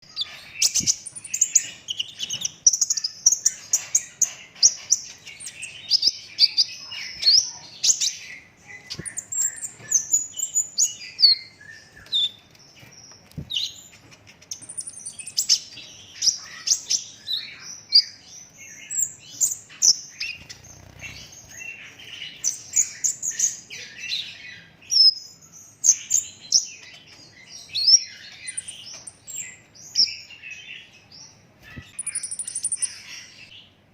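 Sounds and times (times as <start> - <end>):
sunbird chirps and trills: 0.0 - 33.9.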